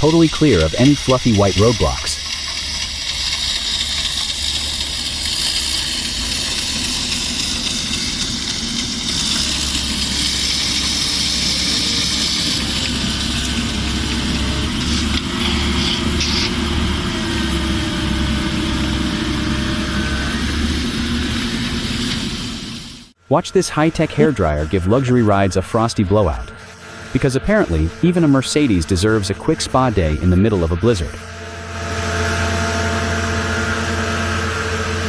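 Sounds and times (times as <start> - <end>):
strong rushing hiss: 0.0 - 23.0
snow-clearing machine engine: 0.0 - 35.0.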